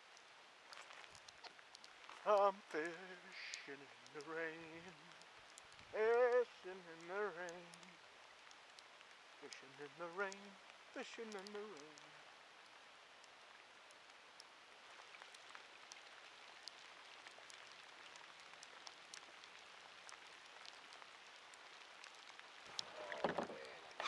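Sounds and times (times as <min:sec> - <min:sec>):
light rain falling: 0:00.0 - 0:24.0.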